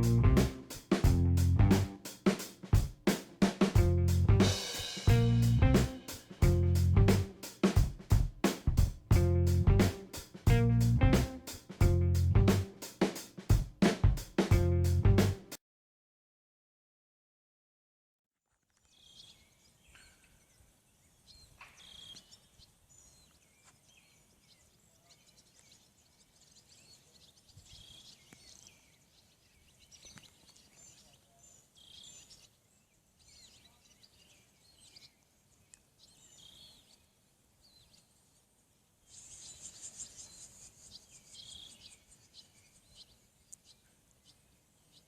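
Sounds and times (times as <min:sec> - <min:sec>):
faint bird song: 0:18.7 - 0:45.0.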